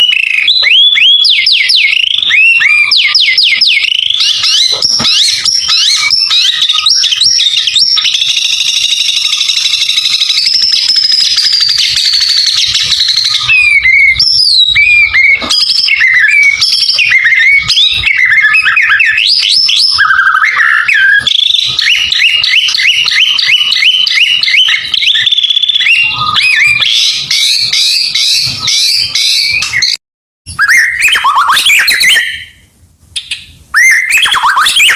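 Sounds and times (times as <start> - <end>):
bird singing varied whistles: 0.0 - 32.6, 33.2 - 34.9.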